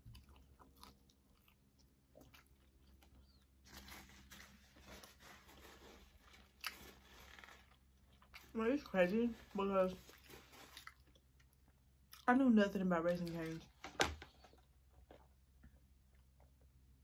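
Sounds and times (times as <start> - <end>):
close-miked chewing: 0.0 - 3.9.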